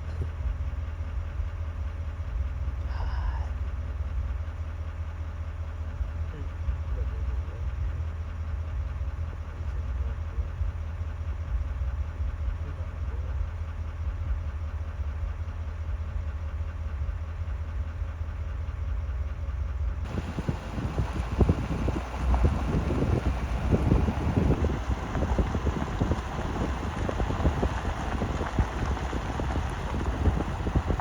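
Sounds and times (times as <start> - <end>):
vehicle engine and road rumble: 0.0 - 31.0
wind buffeting microphone: 20.1 - 31.0.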